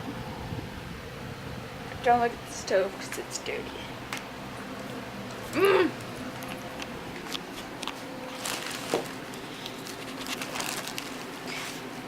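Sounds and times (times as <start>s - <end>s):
food packaging crinkling: 6.3s - 11.8s.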